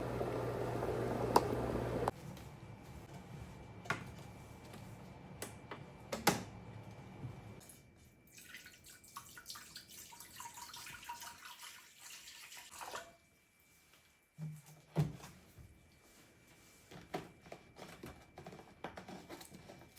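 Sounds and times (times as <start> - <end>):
running water: 0.0 - 2.1.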